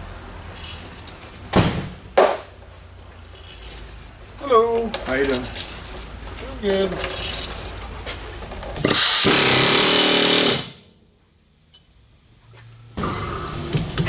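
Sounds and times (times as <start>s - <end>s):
pneumatic impact wrench hammering: 8.7s - 11.0s.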